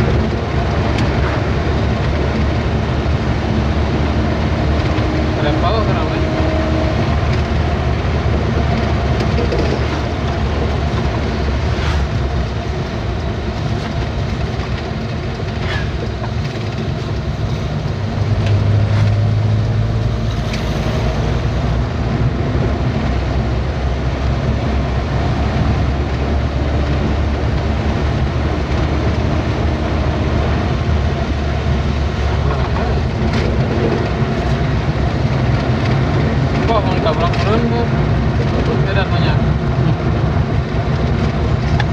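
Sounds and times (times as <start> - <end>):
road noise: 0.0 - 41.9
truck engine drone: 0.0 - 41.9
knocks and rattles: 8.2 - 11.3.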